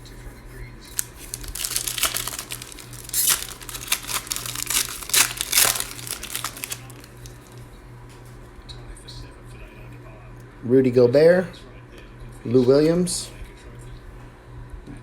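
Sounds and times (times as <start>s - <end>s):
plastic wrapper crinkling and tearing: 0.8s - 7.6s.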